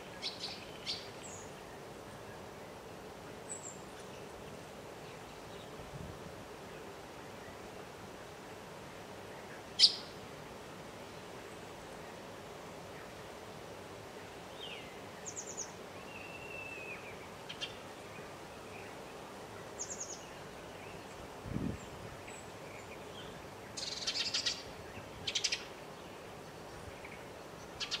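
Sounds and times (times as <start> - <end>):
songbirds chirping: 0.0 - 28.0
bird trills: 9.8 - 10.1.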